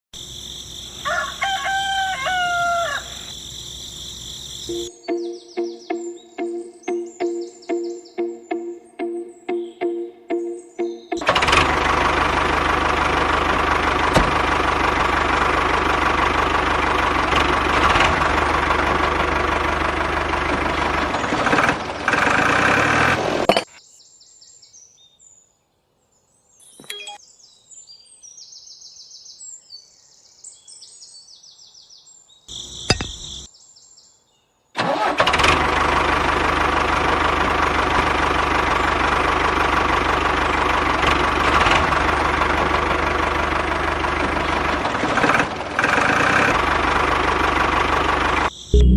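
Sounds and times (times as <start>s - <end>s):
small tractor engine running: 3.2s - 4.9s, 10.8s - 23.7s, 34.8s - 48.9s.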